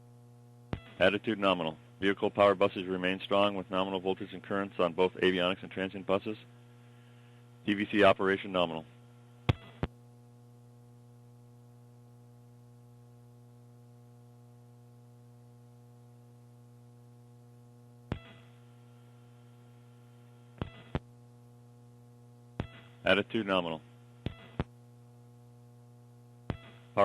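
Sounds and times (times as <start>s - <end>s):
electrical hum: 0.0s - 27.0s.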